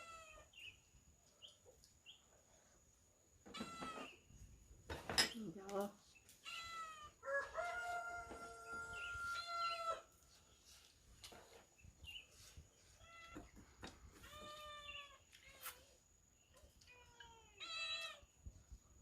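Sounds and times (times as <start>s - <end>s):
rooster crowing: 7.2s - 10.0s.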